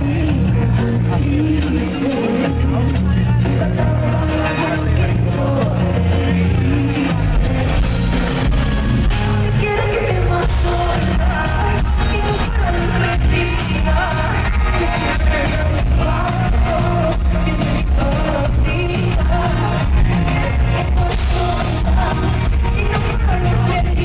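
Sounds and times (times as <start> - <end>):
woman singing: 0.0 - 24.0
heavy pop beat over loudspeakers: 10.4 - 24.0.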